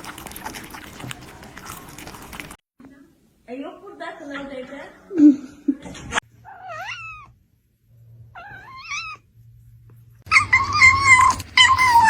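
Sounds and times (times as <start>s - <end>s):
cat meowing: 6.4s - 7.4s, 8.4s - 9.2s, 10.3s - 12.0s.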